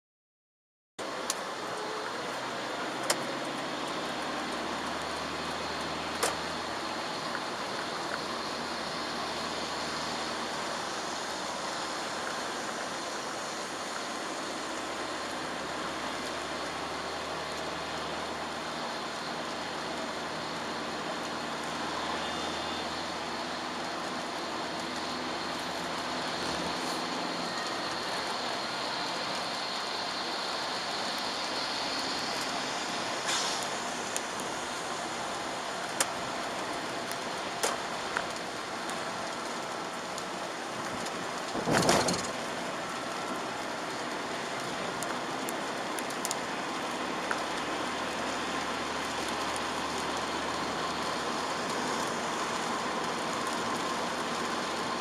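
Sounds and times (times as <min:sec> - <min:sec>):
low engine hum: 0:01.0 - 0:55.0
road and rain noise in a car: 0:01.0 - 0:55.0.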